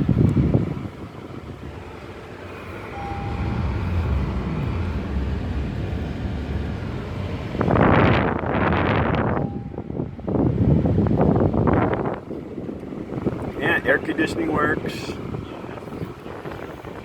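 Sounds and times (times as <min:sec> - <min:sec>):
air conditioning blower rumble: 0:00.0 - 0:17.0
rush of air: 0:02.6 - 0:08.8.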